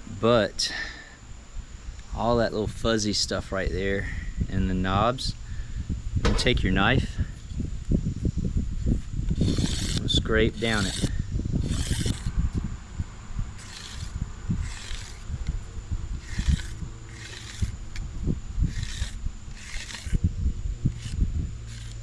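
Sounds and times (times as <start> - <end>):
knife scraping a dry stalk: 9.0 - 12.3, 13.6 - 15.6, 16.2 - 18.1, 18.7 - 20.2, 20.9 - 22.0.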